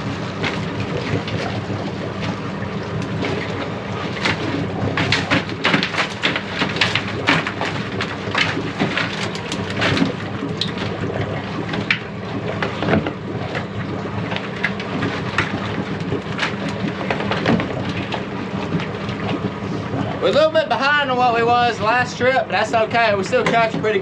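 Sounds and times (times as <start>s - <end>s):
boat engine running: 0.0s - 24.0s
water splashing and dripping: 0.0s - 24.0s
wire crab trap clattering: 3.3s - 10.9s.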